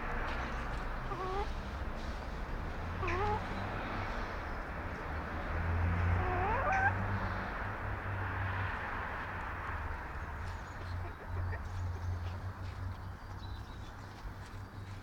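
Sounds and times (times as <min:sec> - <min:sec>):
chickens calling: 0:01.0 - 0:01.5, 0:02.9 - 0:04.1, 0:05.8 - 0:07.5, 0:10.0 - 0:12.4.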